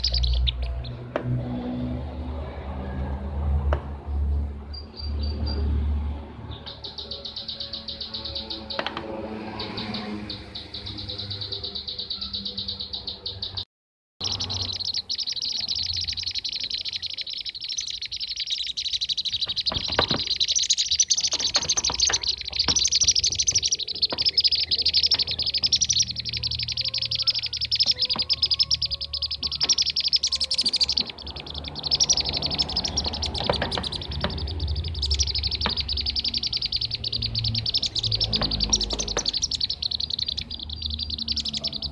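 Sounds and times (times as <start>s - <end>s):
bird rolling chirps: 14.2s - 41.9s.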